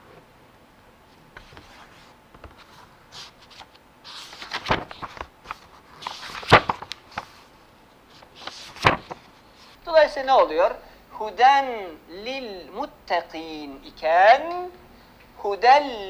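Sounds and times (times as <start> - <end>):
soft rustling: 1.0 - 10.1.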